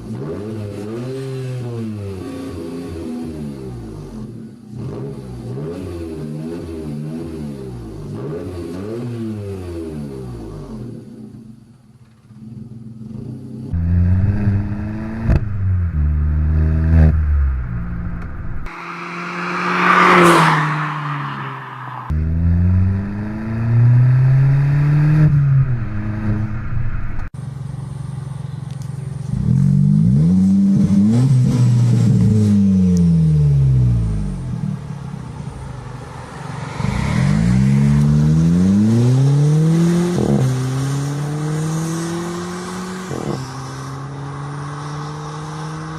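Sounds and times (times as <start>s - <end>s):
car engines revving: 0.0s - 11.4s, 12.1s - 27.3s, 28.2s - 45.9s
loud rushing noise: 18.7s - 22.2s.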